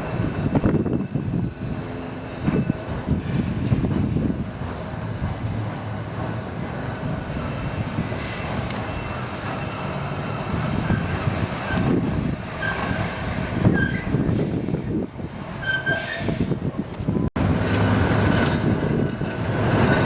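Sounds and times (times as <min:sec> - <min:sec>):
tram rumbling along track: 0:00.0 - 0:20.0
tram wheels squealing: 0:00.0 - 0:20.0.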